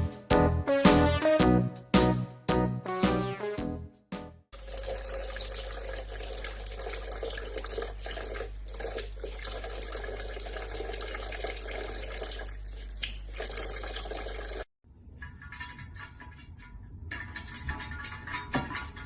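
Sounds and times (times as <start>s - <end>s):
water running into a sink: 4.6s - 14.7s.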